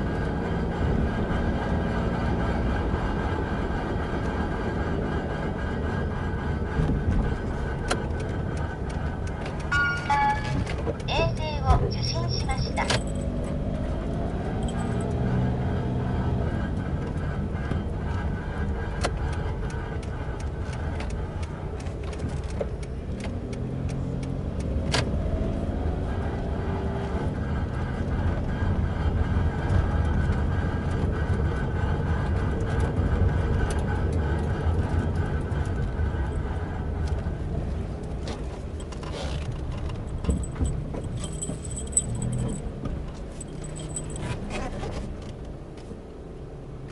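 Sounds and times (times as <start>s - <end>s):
car engine accelerating: 0.0s - 46.9s
road noise: 0.0s - 46.9s
metallic jangling and scraping: 9.6s - 13.7s, 14.5s - 15.4s, 38.7s - 45.2s.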